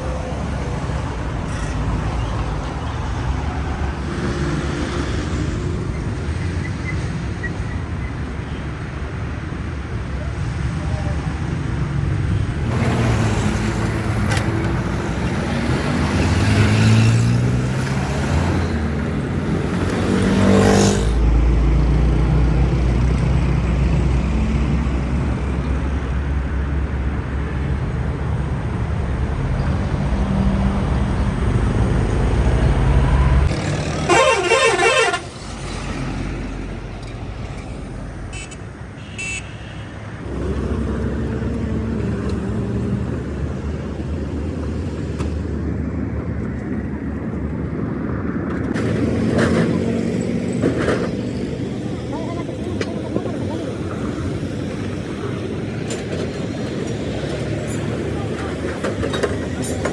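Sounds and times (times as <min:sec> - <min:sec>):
heavy vehicle engines passing: 0:00.0 - 0:59.9
vehicle horn: 0:33.1 - 0:35.5, 0:38.3 - 0:40.2.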